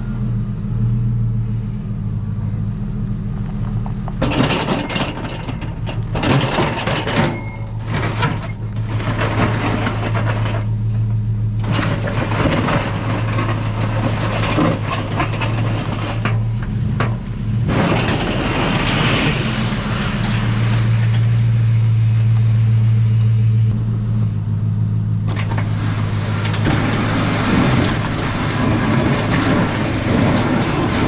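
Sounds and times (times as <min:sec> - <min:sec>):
truck engine running: 0:00.0 - 0:31.0
plow blade scraping snow and ice: 0:04.2 - 0:31.0.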